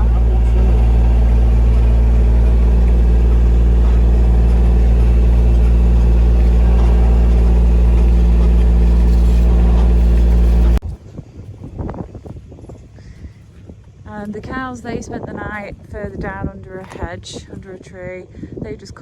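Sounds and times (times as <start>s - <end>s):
truck engine droning: 0.0s - 10.8s.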